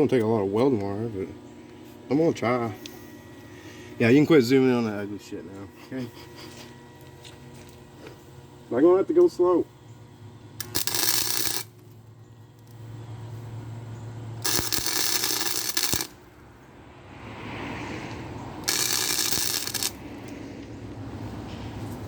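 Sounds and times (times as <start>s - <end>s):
low steady hum: 0.0s - 22.0s
welder arc crackling: 10.6s - 12.8s, 14.4s - 16.3s, 18.6s - 20.4s.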